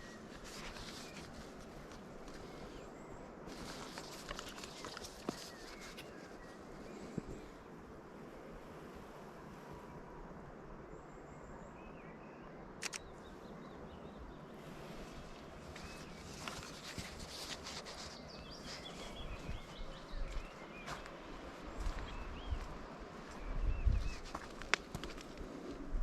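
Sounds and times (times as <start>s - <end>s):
birds chirping: 0.0s - 7.6s, 11.3s - 25.4s
sharp clicks: 12.8s - 13.1s.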